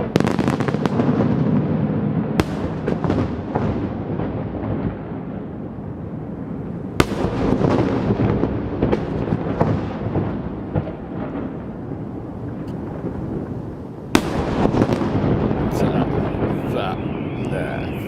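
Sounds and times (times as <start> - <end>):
loud firework bang: 0.0 - 5.1, 7.0 - 11.5, 14.1 - 18.0
fireworks rumble and cracks: 0.0 - 18.0.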